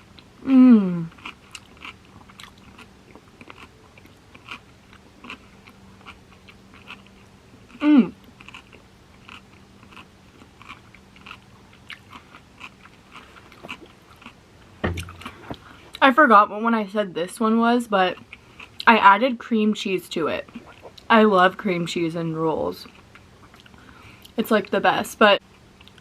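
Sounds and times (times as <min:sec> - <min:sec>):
person humming: 0:00.4 - 0:01.1, 0:07.8 - 0:08.2
mouth chewing wet smacks: 0:01.2 - 0:15.7, 0:20.4 - 0:21.1.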